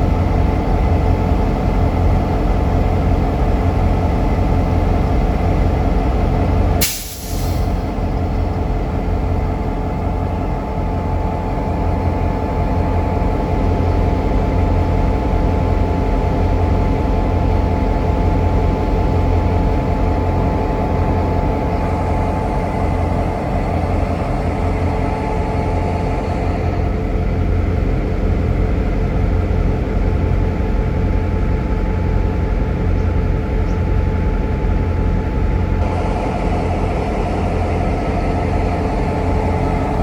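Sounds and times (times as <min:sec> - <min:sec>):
diesel locomotive engine droning: 0:00.0 - 0:40.0
air brakes hissing: 0:06.8 - 0:08.0.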